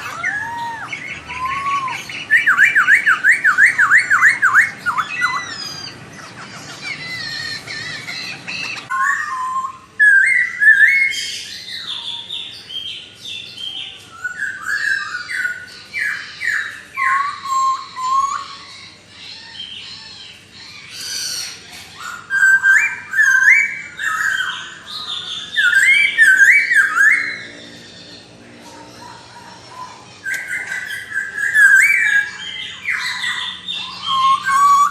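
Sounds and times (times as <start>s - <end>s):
bird singing whistled phrases: 0.0s - 6.0s, 8.7s - 18.6s, 20.9s - 27.7s, 29.8s - 34.9s.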